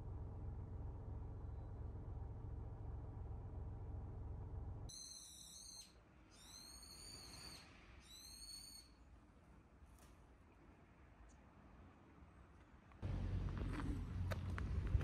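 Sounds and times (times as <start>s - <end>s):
clear high bird calls: 4.9s - 9.2s
low rumble: 13.0s - 15.0s.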